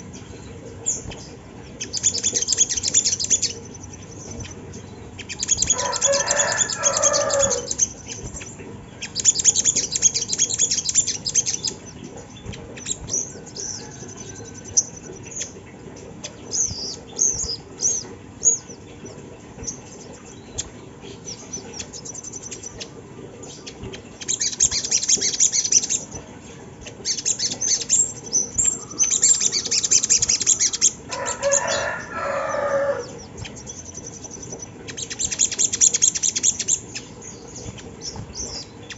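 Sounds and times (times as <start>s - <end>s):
high bird chirps: 0.0s - 15.6s
bird chattering trills: 0.0s - 38.9s.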